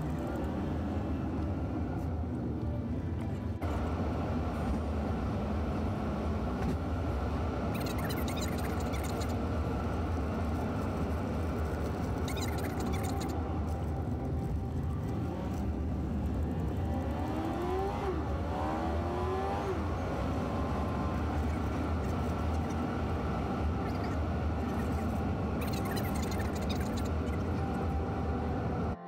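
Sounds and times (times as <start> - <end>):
car engine and tyres rumbling: 0.0 - 29.0.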